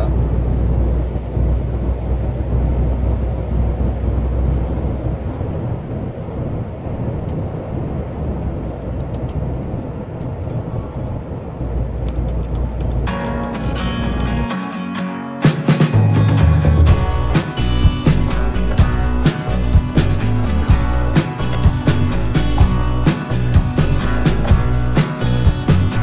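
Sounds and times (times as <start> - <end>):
truck engine drone: 0.0 - 26.0
tyre rumble on road: 11.4 - 13.1.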